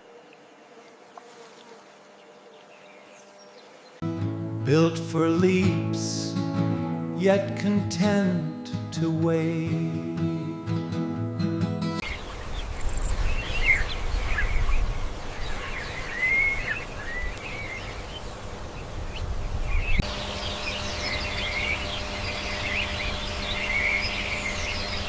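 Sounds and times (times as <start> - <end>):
birds chirping: 2.0 - 8.5, 12.0 - 25.0
faint steady hum: 17.3 - 25.0.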